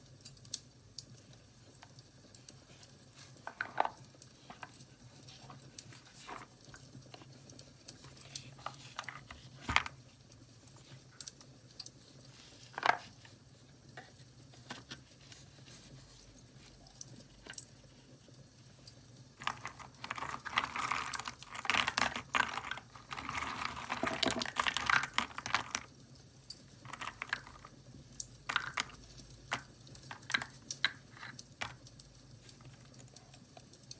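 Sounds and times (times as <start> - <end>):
paper rustling and crinkling: 2.4 - 11.2, 12.0 - 13.4, 14.0 - 16.8, 19.4 - 25.9, 26.8 - 27.8, 28.5 - 31.8.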